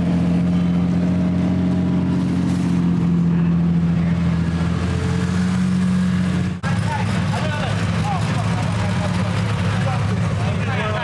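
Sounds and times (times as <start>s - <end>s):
car engine idling: 6.4s - 11.0s.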